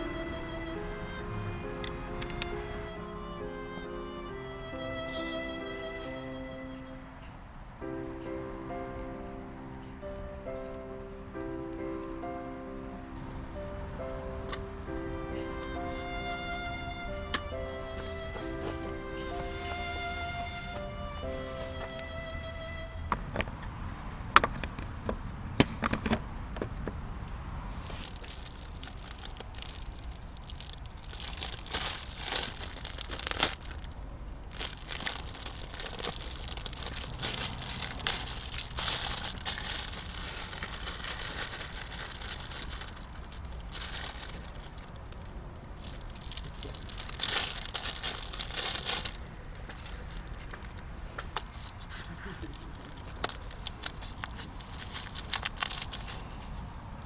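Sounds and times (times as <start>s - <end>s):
packaging crinkling: 27.7s - 57.0s.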